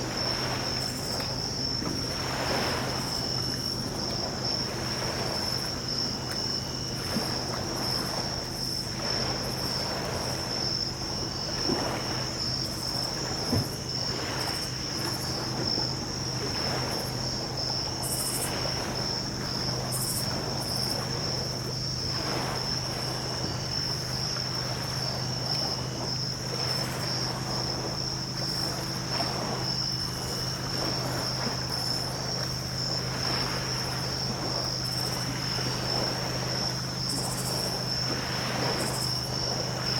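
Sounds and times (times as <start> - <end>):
crickets chirring: 0.0 - 39.9
small waves washing on beach: 0.0 - 39.9.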